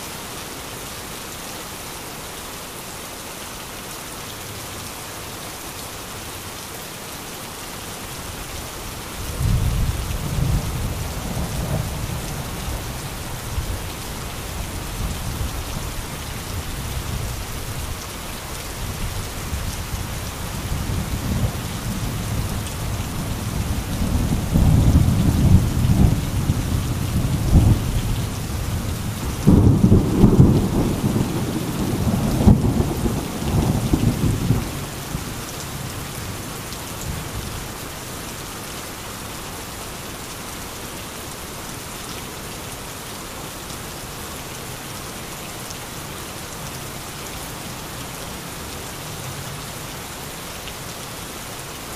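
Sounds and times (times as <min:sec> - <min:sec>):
heavy rain: 0:00.0 - 0:51.9
rolling thunder: 0:23.3 - 0:34.8.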